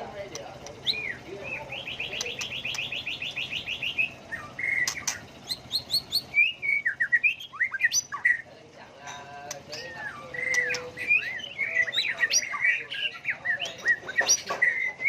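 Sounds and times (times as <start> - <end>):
bird singing trills and whistles: 0.7 - 8.5, 9.5 - 15.0
sharp clicks: 2.1 - 3.0, 4.8 - 5.2.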